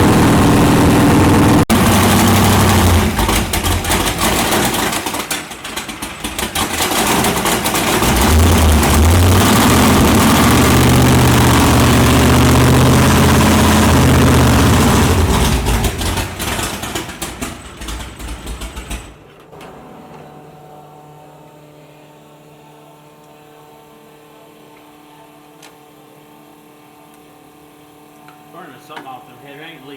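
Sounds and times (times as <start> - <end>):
car engine revving and idling: 0.0 - 19.0.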